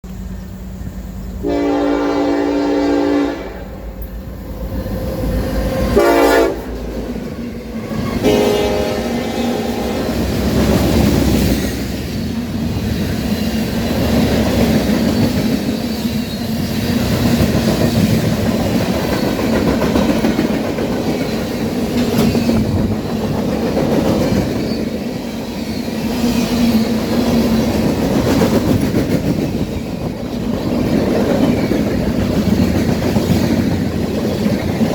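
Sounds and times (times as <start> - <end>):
train passing with heavy rumble: 0.0 - 34.9
locomotive horn blasts: 1.4 - 4.0, 6.0 - 6.8, 7.9 - 10.3.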